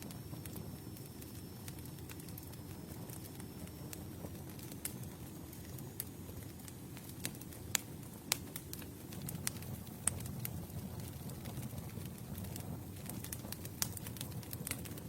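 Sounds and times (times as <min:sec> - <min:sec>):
campfire crackles and pops: 0:00.0 - 0:15.0
campfire flames rumbling: 0:00.0 - 0:15.0.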